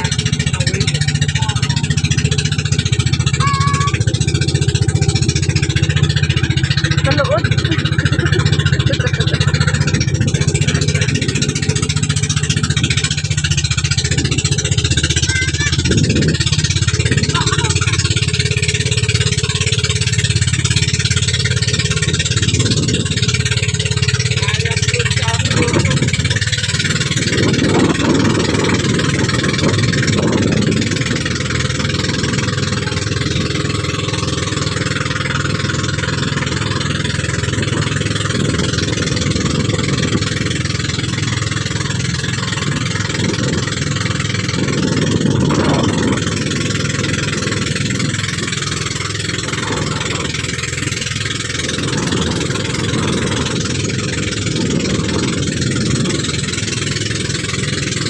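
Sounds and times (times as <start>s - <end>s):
motorboat engine running: 0.0s - 58.0s
rush of wind and water: 0.0s - 58.0s.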